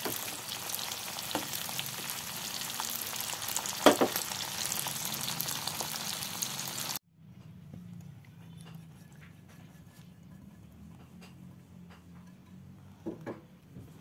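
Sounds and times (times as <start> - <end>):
oil sizzling in a pan: 0.0 - 7.0
spatula knocking on a pan: 3.8 - 4.2.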